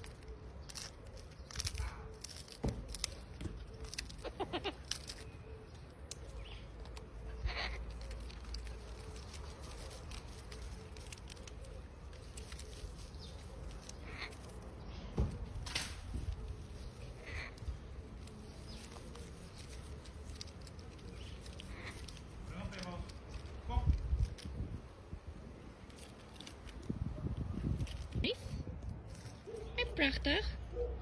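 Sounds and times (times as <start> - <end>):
branches clicking and scratching: 0.0 - 30.9
cockatoo calling: 3.8 - 9.9, 10.5 - 14.6, 16.7 - 22.3
wind rumble: 26.5 - 29.2.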